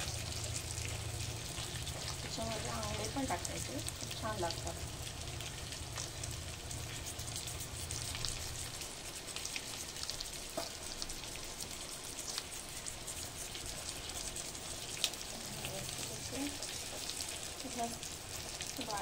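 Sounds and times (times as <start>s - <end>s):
crabs sizzling in oil: 0.0s - 19.0s
oil popping and crackling: 0.0s - 19.0s.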